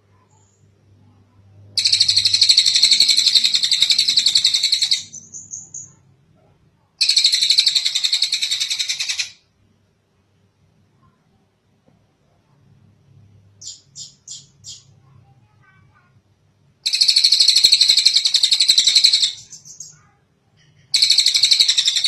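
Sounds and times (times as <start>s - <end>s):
bird rattling trills: 1.8s - 5.9s, 7.0s - 9.4s, 16.8s - 20.0s, 20.9s - 22.0s.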